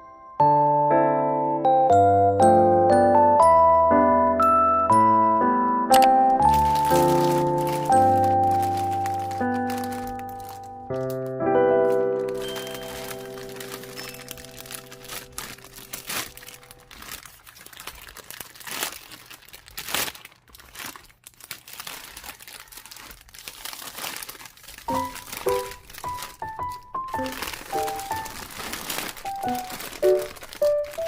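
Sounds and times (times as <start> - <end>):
soft background music: 0.0 - 17.2, 24.9 - 31.0
crinkling handling sounds: 5.0 - 31.0.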